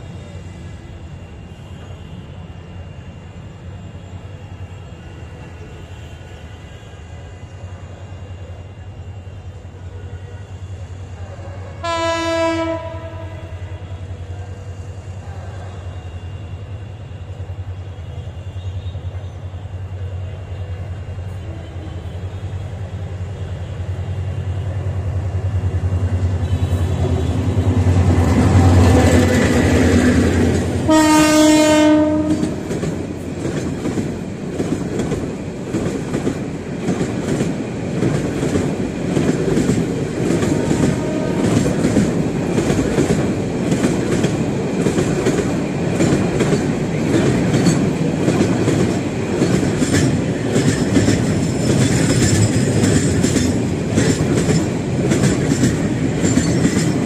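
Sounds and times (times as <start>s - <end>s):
diesel locomotive engine rumble: 0.0s - 57.0s
train horn blast: 9.9s - 14.5s, 26.3s - 32.8s, 40.5s - 41.8s.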